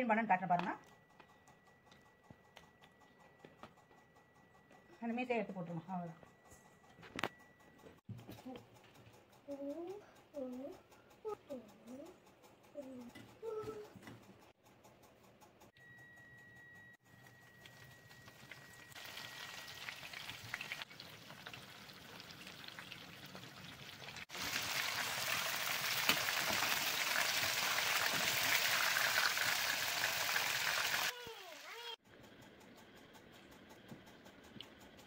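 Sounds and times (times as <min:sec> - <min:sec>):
prawn heads deep-frying in oil: 0:17.6 - 0:32.0.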